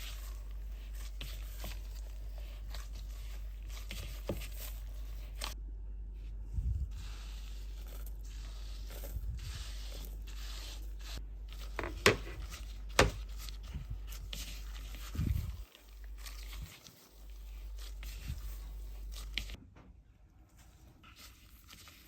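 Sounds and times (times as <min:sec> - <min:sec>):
steady low hum: 0:00.2 - 0:16.2
paper rustling: 0:11.6 - 0:13.6.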